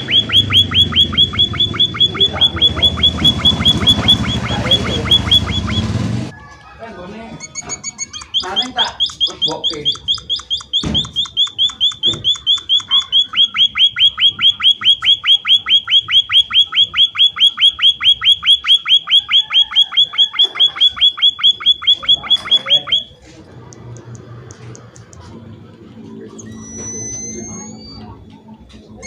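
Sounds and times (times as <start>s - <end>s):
bird chirping rapidly: 0.0s - 6.0s, 7.4s - 23.1s.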